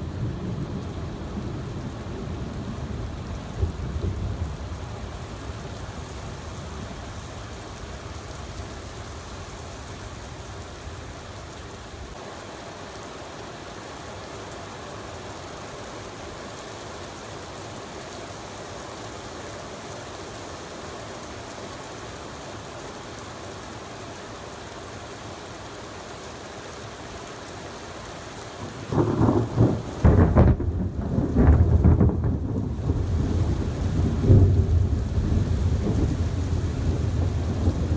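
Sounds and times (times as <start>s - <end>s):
heavy rain: 0.0s - 37.9s
low thunder rumble: 28.8s - 37.9s
loud thunder crack: 28.9s - 37.9s.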